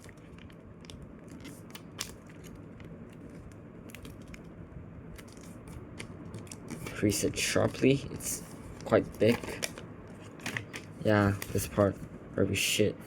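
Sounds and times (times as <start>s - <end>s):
paper being folded and creased: 5.2s - 7.1s.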